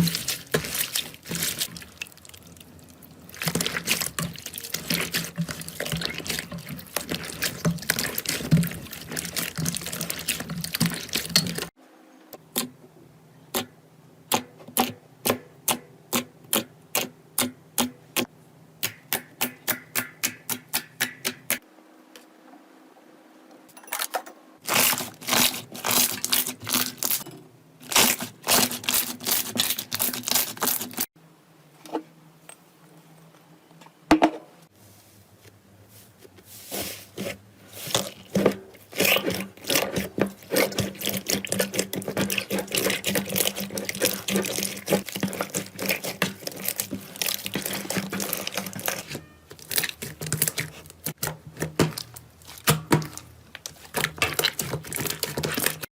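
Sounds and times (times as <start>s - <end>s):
slime dense crackling: 37.8s - 51.2s.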